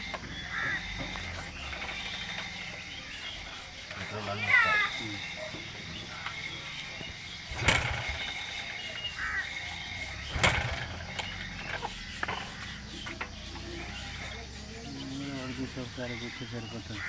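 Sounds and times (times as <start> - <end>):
sharp knocks: 10.3 - 13.4.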